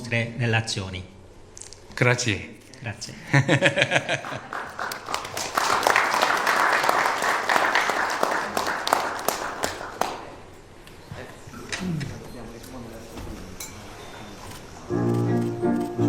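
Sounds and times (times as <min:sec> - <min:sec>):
audience applauding: 0:04.0 - 0:10.5.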